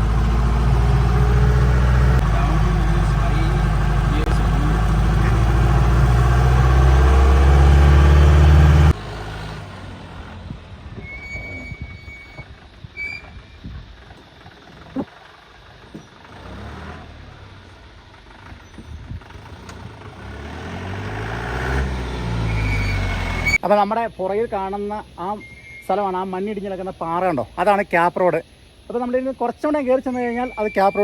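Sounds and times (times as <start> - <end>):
jeep engine running: 0.0 - 23.6.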